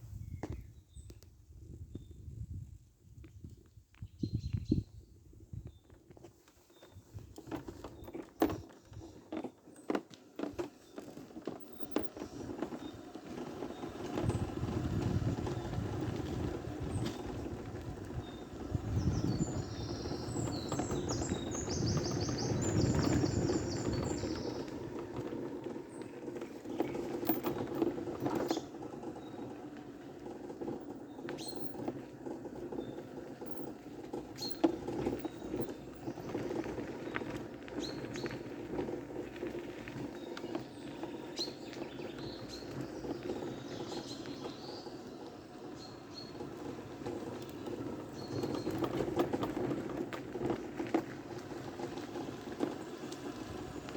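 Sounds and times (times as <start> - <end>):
birds chirping: 10.8 - 53.9.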